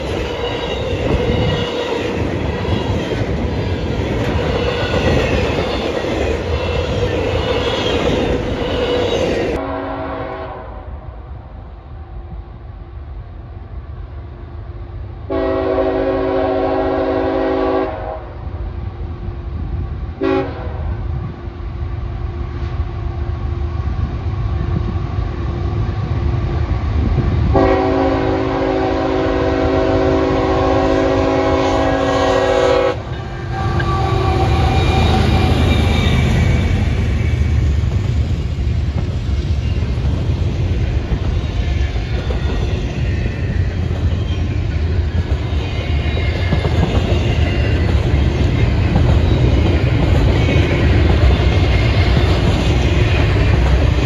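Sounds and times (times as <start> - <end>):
train horn blasts: 9.6 - 11.1, 15.3 - 18.4, 20.2 - 21.0, 27.5 - 36.1
train wheels clattering over rails: 33.0 - 54.0.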